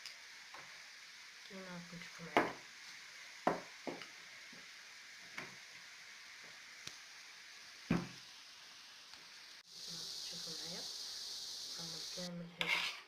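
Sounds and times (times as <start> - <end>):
taps on kitchen work surface: 2.4 - 2.6, 3.4 - 4.1.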